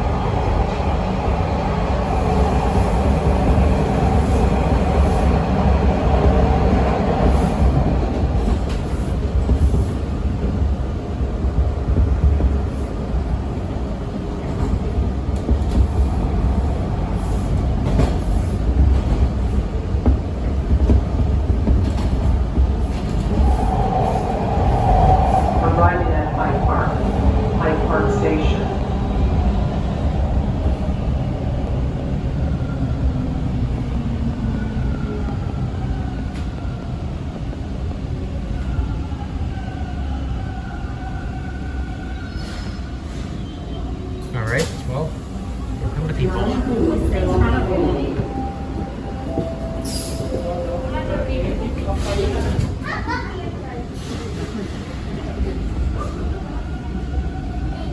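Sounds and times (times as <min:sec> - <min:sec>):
subway wheels rumbling: 0:00.0 - 0:57.9.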